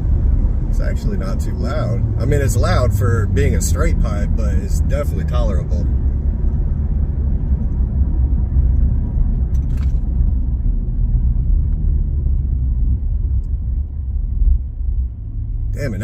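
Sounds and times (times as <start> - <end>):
truck engine rumbling: 0.0 - 16.0.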